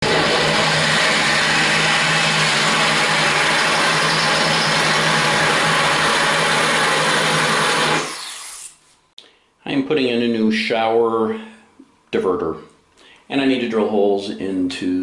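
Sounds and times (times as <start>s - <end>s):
power drill whirring: 0.0s - 8.8s.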